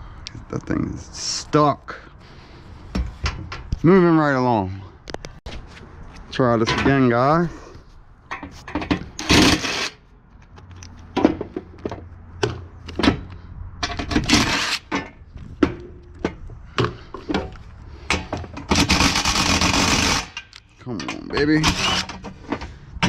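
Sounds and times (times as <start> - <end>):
metal knocks and clanks: 11.1 - 19.1
metal scraping: 13.8 - 15.3.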